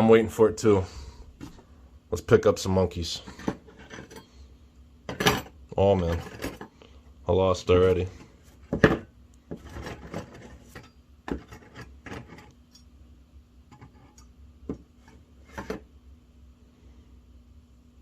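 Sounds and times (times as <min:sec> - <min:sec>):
metal figures clinking and scraping: 0:03.2 - 0:04.4, 0:05.1 - 0:06.7, 0:09.5 - 0:12.9.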